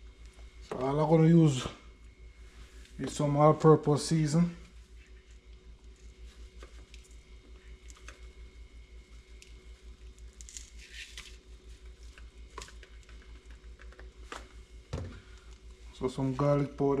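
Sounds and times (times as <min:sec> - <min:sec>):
steady low hum: 0:00.0 - 0:17.0
soft squishing of raw fish: 0:04.7 - 0:16.0.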